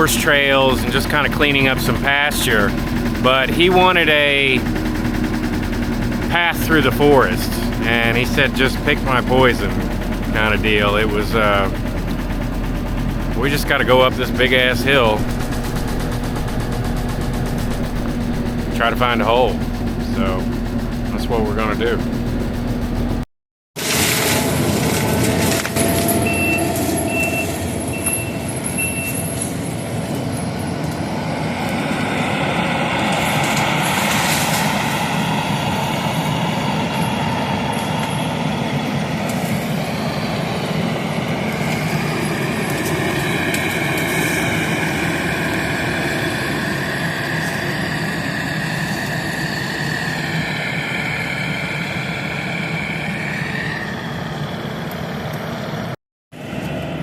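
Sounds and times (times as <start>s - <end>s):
diesel engine and hydraulics: 0.0s - 57.0s
backup alarm beeping: 25.7s - 29.4s.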